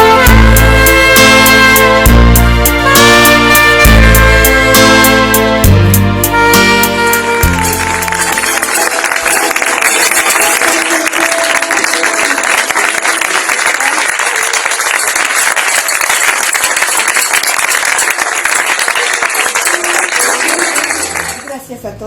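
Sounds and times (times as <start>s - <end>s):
music: 0.0s - 11.9s
audience applauding: 7.4s - 21.6s.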